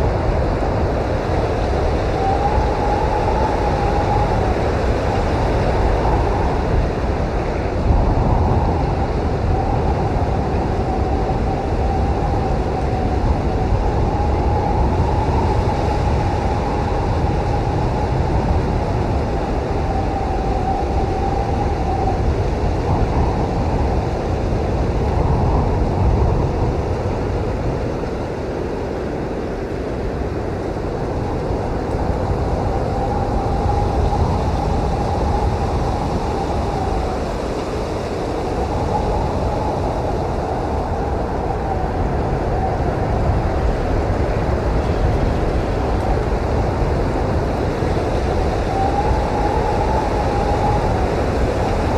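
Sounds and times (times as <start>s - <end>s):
blizzard wind blowing: 0.0s - 51.9s
wind whistling: 0.0s - 51.9s.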